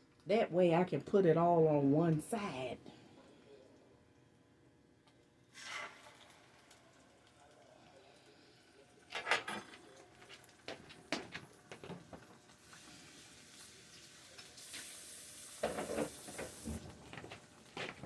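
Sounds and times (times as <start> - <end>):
eggs and bacon sizzling: 5.0 - 18.0.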